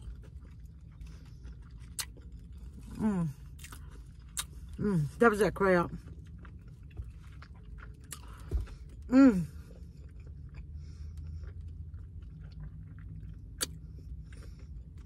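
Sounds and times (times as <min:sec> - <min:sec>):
person chewing food: 0:00.0 - 0:05.2, 0:05.9 - 0:15.0
hummed voice sound: 0:09.1 - 0:09.6.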